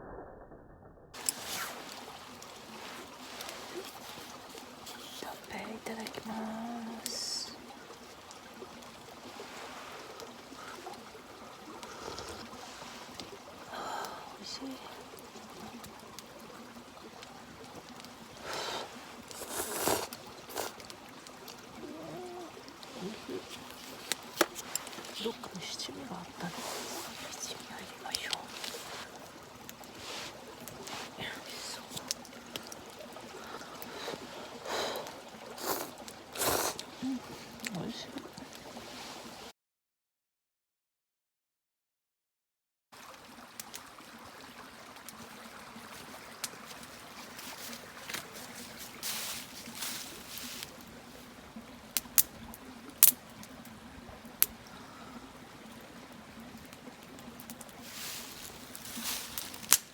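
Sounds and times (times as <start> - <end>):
river rushing: 1.2 - 39.5, 57.8 - 59.9.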